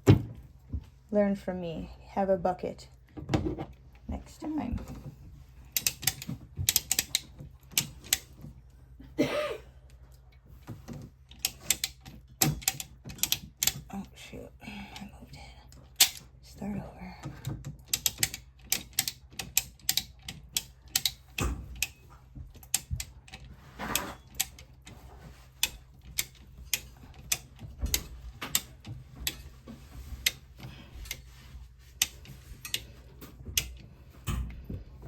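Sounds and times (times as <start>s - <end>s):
metallic clicks of hand tools: 5.7s - 8.4s, 11.3s - 13.9s, 16.0s - 16.2s, 17.4s - 25.0s, 25.6s - 29.4s, 32.0s - 34.6s.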